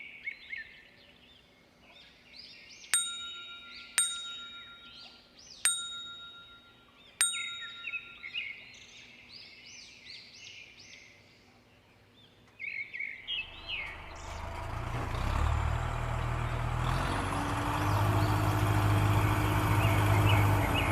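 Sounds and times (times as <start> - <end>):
ringing metallic dings: 3.0 - 8.7
bird-like chirping: 7.1 - 9.2.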